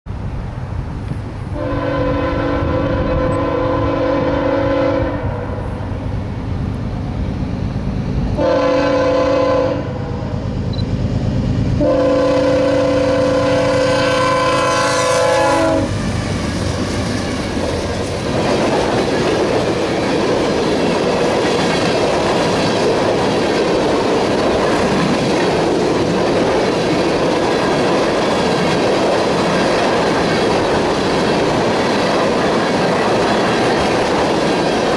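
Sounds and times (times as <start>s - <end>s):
locomotive engine rumble: 0.1s - 34.9s
locomotive horn blasts: 1.5s - 5.6s, 8.4s - 10.3s, 11.8s - 16.0s
train wheel clatter: 13.4s - 34.9s.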